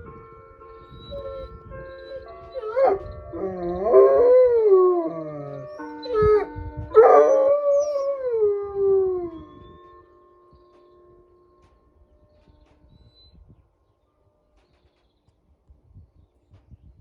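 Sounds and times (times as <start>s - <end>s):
chime melody: 0.0s - 13.0s
dog howling: 2.2s - 10.1s.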